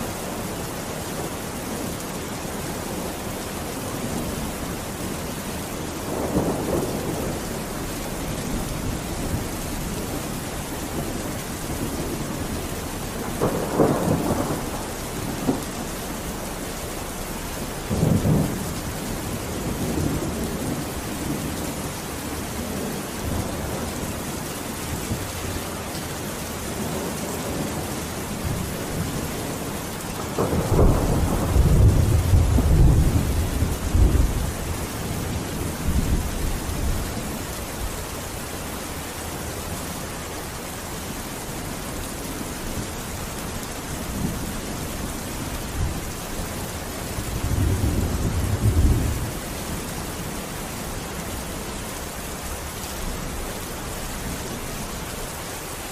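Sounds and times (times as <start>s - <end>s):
heavy rain hissing: 0.0s - 55.9s
rolling thunder: 4.0s - 24.2s, 26.8s - 38.0s, 43.9s - 49.9s.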